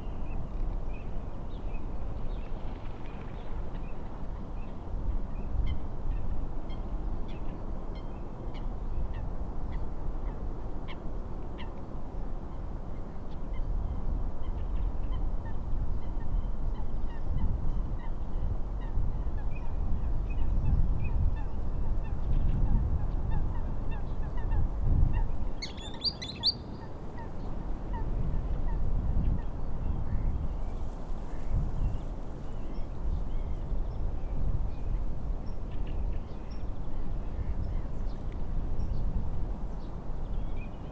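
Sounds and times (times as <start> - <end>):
wind: 0.0 - 40.9
small birds chirping: 25.6 - 26.8.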